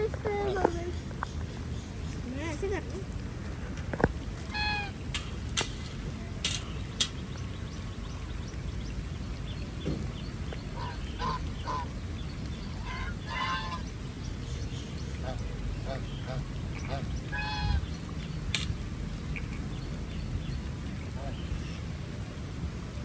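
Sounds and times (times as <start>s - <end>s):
rain hissing: 0.0s - 23.0s
ducks quacking: 4.4s - 5.3s, 10.8s - 12.0s, 12.8s - 13.9s, 15.2s - 17.9s.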